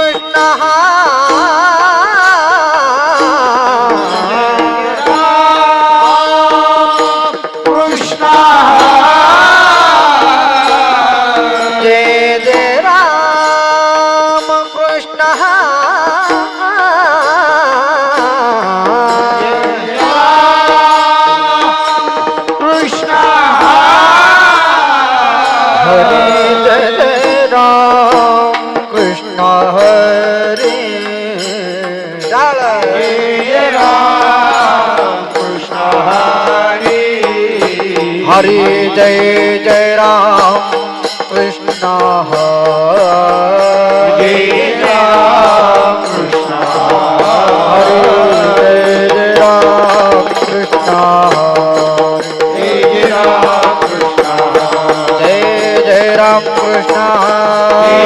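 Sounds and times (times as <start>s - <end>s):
person singing long sliding notes: 0.0s - 13.1s, 17.2s - 29.6s, 32.7s - 41.1s, 42.6s - 51.2s, 52.5s - 58.0s
drum strokes: 0.0s - 58.0s
held instrument tones: 18.6s - 58.0s.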